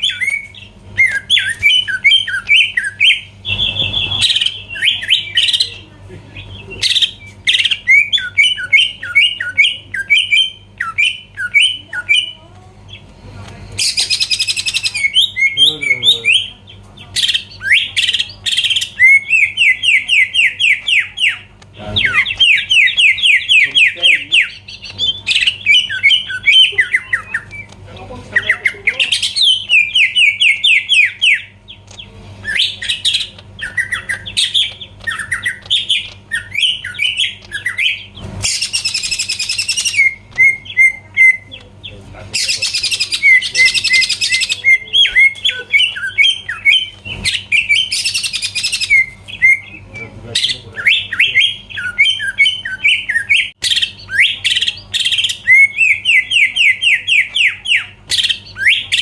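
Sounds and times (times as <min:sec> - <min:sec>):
bird singing whistles: 0:00.0 - 0:05.7, 0:06.6 - 0:12.4, 0:32.4 - 0:41.5, 0:42.4 - 0:59.0.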